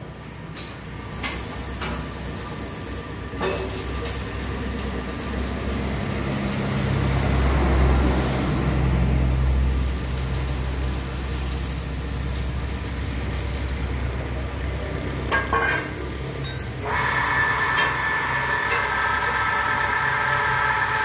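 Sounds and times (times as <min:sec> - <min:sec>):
vehicle engine running: 0:04.0 - 0:15.3.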